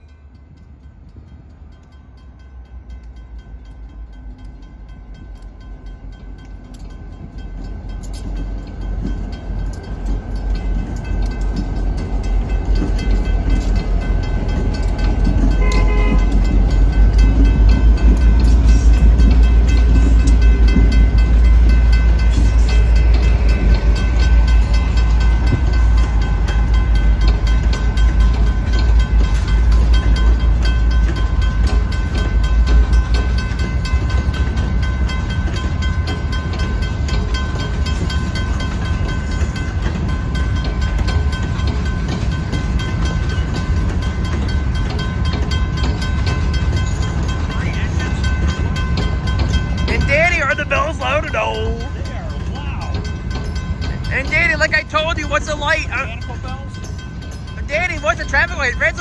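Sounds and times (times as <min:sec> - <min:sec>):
train rumbling past: 0:00.0 - 0:59.0
train horn: 0:15.5 - 0:16.5.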